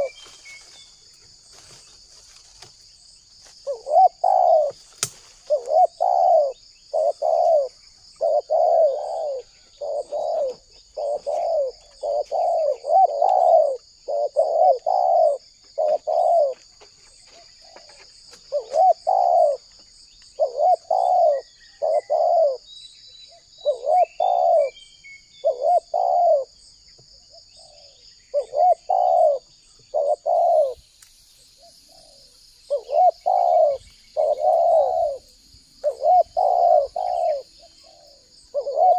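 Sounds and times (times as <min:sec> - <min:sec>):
dove cooing: 0:00.0 - 0:00.2, 0:03.6 - 0:04.8, 0:05.4 - 0:19.8, 0:20.4 - 0:22.7, 0:23.3 - 0:24.8, 0:25.4 - 0:26.6, 0:27.2 - 0:30.8, 0:31.6 - 0:38.9.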